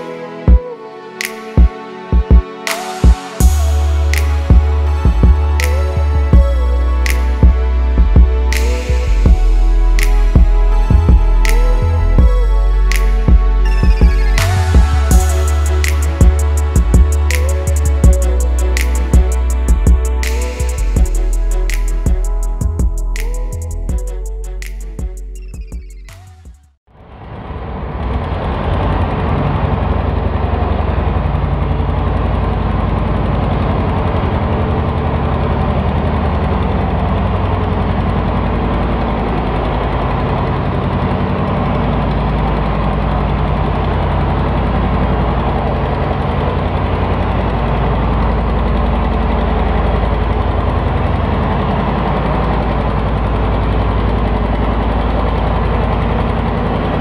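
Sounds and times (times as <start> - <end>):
tractor engine running: 28.5 - 57.0.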